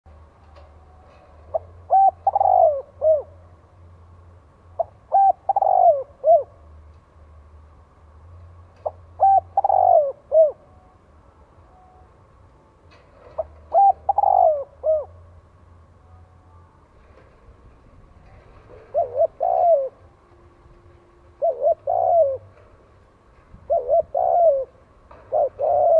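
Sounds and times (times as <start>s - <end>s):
dove cooing: 1.4s - 3.4s, 4.8s - 6.6s, 8.8s - 10.7s, 13.2s - 15.3s, 18.2s - 20.2s, 20.9s - 22.9s, 23.5s - 25.9s.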